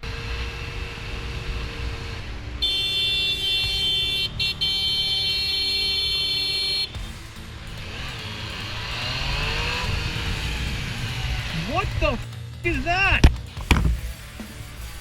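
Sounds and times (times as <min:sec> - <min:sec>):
low rumble of motorcycle: 0:00.0 - 0:15.0
motorcycle horn blaring: 0:01.9 - 0:07.5.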